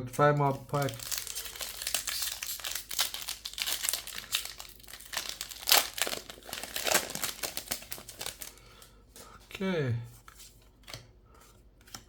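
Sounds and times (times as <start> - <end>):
foil wrapper crinkling: 0.4 - 8.9.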